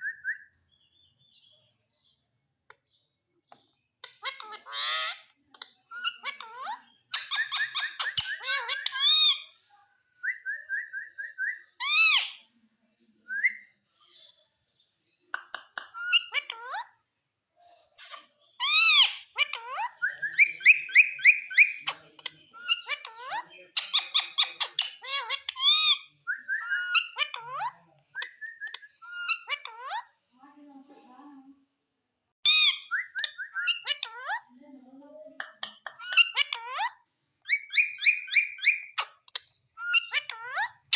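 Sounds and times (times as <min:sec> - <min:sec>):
parakeet chirping and squawking: 0:04.0 - 0:09.7, 0:11.6 - 0:12.5, 0:15.9 - 0:17.0, 0:18.1 - 0:27.8, 0:28.9 - 0:30.2, 0:32.4 - 0:34.6, 0:35.9 - 0:40.9.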